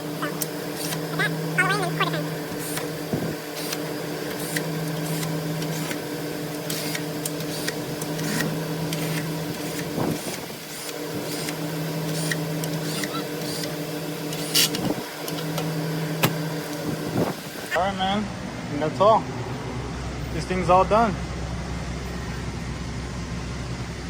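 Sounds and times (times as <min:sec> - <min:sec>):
small electric motor humming: 0:00.0 - 0:17.8.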